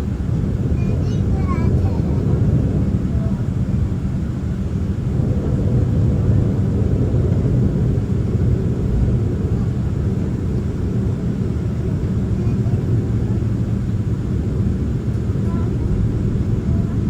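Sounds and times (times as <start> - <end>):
airplane cabin rumble: 0.0 - 17.0.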